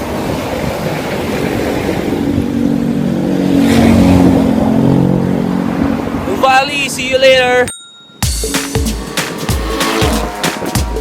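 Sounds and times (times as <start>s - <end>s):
road and wind noise: 0.0s - 11.0s
vehicle engine: 2.0s - 6.5s, 8.3s - 11.0s.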